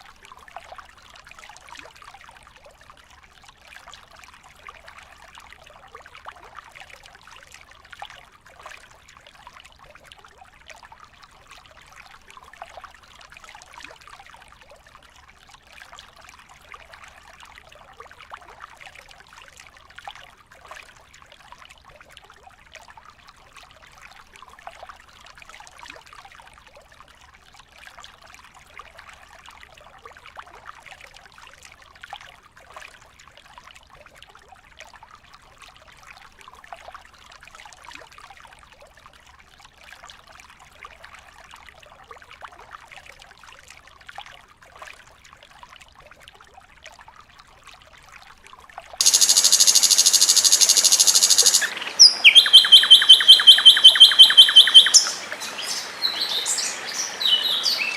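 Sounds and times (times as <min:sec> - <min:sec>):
songbird song: 0:49.0 - 0:57.9.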